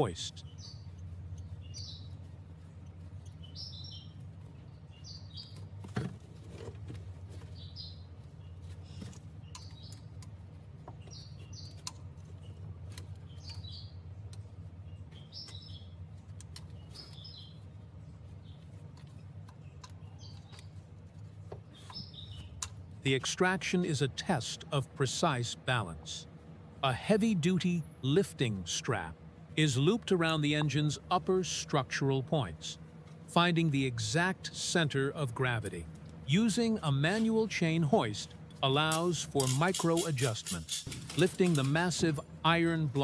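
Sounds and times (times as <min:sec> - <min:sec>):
bird chirping: 0:00.0 - 0:05.8, 0:07.4 - 0:10.2, 0:10.9 - 0:16.0, 0:16.6 - 0:22.7
steady low hum: 0:00.0 - 0:43.0.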